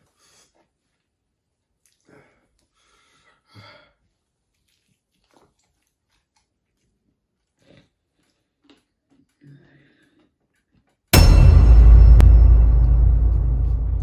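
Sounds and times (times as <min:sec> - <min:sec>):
person biting and chewing: 0:04.6 - 0:09.5.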